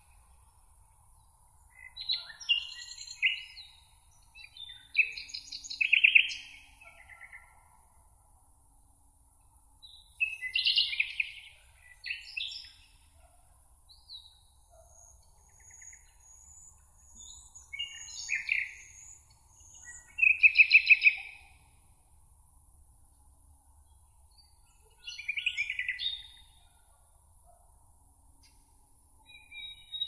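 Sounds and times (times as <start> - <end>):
songbirds singing: 1.2 - 7.6, 9.8 - 13.3, 13.9 - 21.8, 23.8 - 26.9, 29.2 - 30.0.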